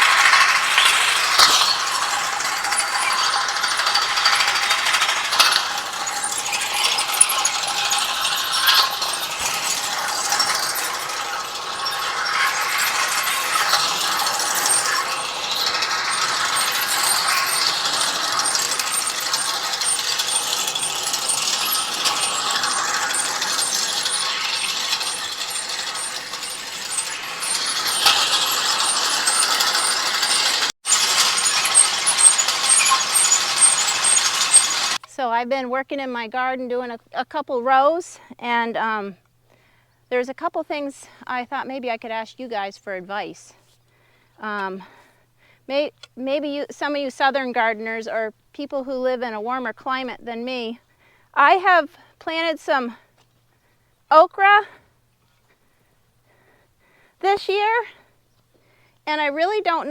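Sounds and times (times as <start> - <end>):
chain conveyor rattling and clicking: 0.0 - 35.1.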